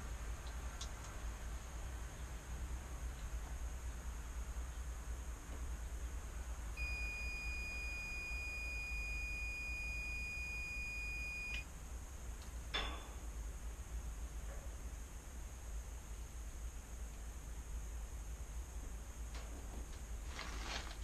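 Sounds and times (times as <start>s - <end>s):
low steady rumble: 0.0s - 21.0s
steady electronic beep: 6.8s - 11.6s.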